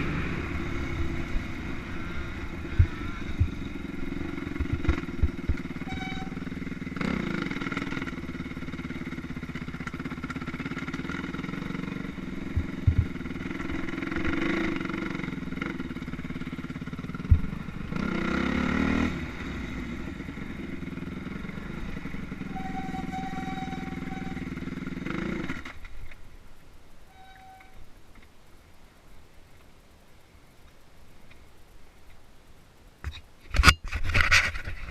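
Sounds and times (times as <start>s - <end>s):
motorcycle engines revving: 0.0s - 26.2s.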